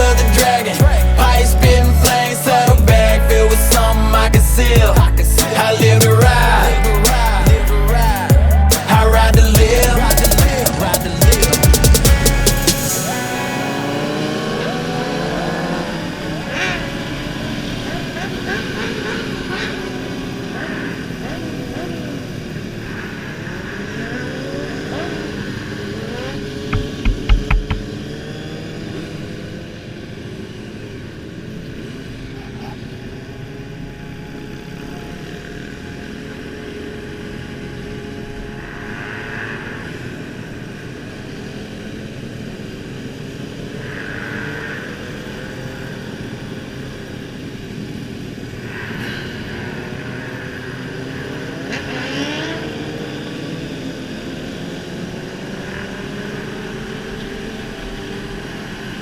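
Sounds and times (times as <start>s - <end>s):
motorcycle engines revving: 0.0s - 59.0s
loud engine pops: 26.7s - 28.0s.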